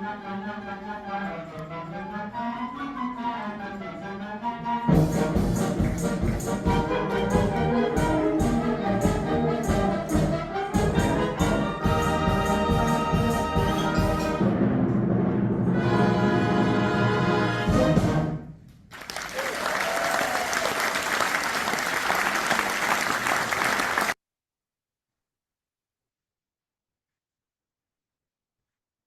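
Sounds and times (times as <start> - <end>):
concert wind band playing: 0.0 - 18.6.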